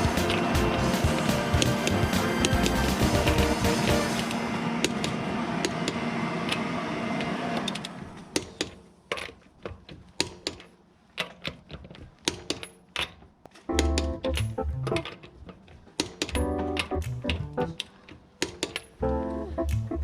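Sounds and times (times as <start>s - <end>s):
background music: 0.0s - 4.4s, 13.6s - 15.2s, 16.4s - 17.9s, 19.0s - 20.0s
sharp clicks and taps: 13.4s - 15.3s, 16.0s - 18.9s, 19.6s - 20.0s.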